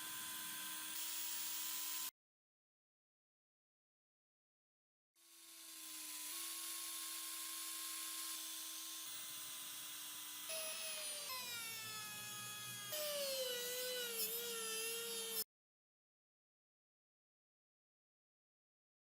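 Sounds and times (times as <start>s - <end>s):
power tool motor whining: 5.4s - 15.4s.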